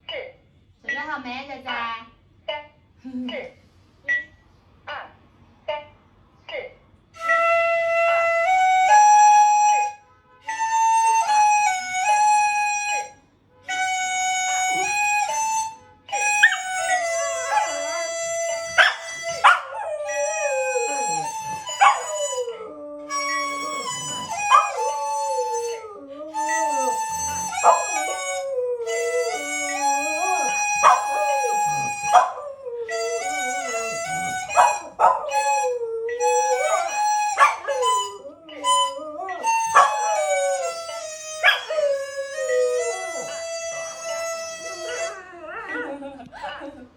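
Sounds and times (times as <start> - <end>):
wind instrument tune: 7.2 - 45.4
dog howling: 14.4 - 46.1.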